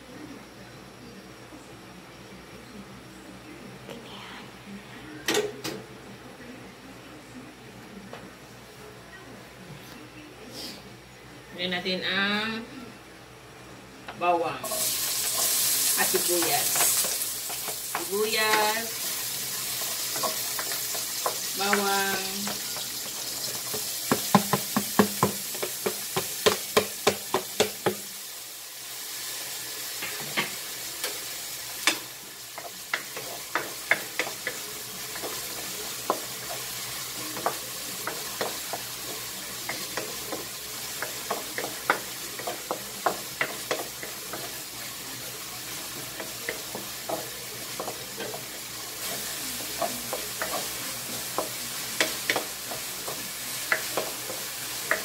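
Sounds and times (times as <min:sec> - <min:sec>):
onion sizzling in hot oil: 0:14.2 - 0:55.0.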